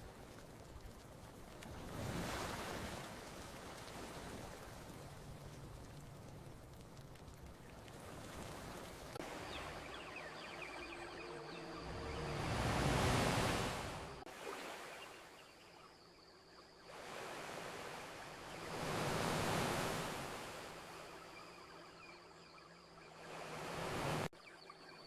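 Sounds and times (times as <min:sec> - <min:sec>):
campfire crackling: 0:00.0 - 0:09.9
ocean surf washing onto beach: 0:00.0 - 0:14.3, 0:16.9 - 0:21.3, 0:23.1 - 0:24.3.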